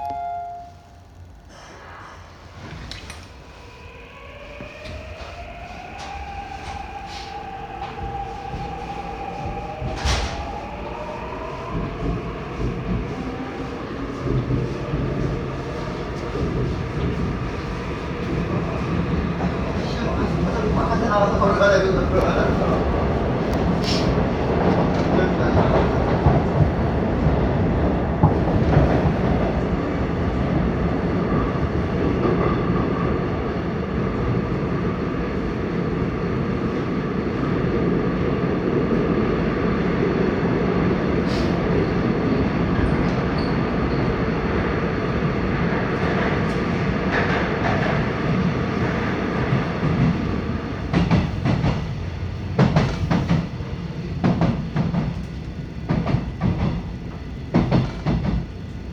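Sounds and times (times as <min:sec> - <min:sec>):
faint even tone: 0:00.0 - 0:01.1
subway train rumbling on rails: 0:00.0 - 0:58.9.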